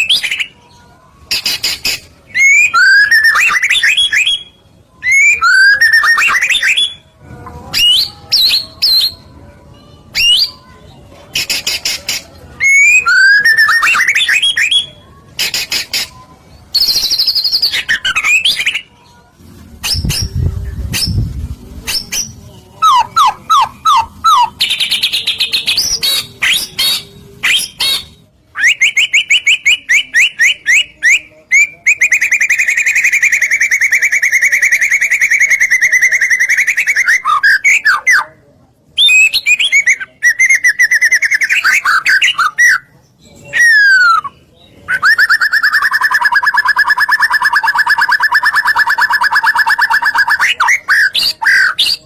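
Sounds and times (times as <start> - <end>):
songbird singing with trills: 2.3 - 7.1.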